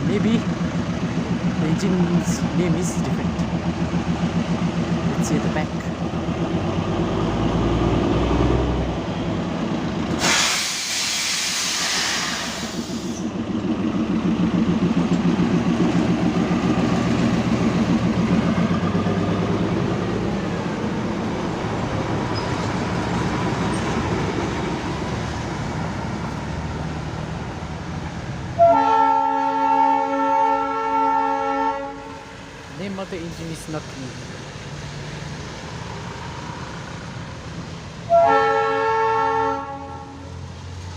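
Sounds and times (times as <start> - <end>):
diesel locomotive engine running: 0.0 - 40.9
loud hissing air burst: 10.2 - 13.3
locomotive horn chord: 28.6 - 32.4, 38.1 - 40.4.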